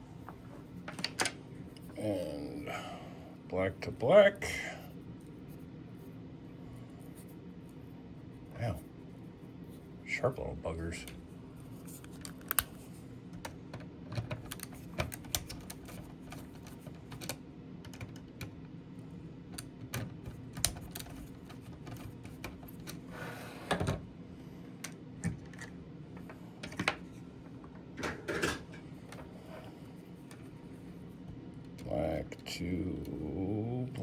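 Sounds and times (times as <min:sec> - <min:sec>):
light clicks and taps of small parts: 0:11.0 - 0:18.6, 0:19.5 - 0:23.0.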